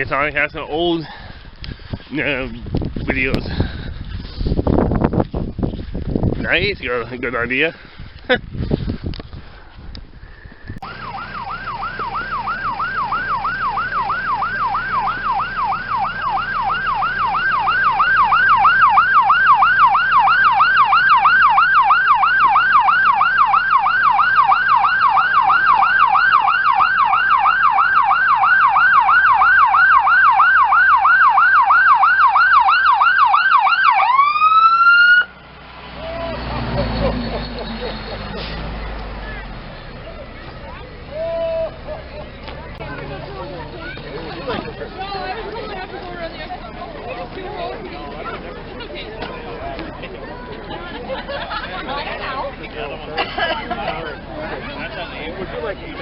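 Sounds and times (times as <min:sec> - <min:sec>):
emergency siren yelping: 0:10.8 - 0:35.4.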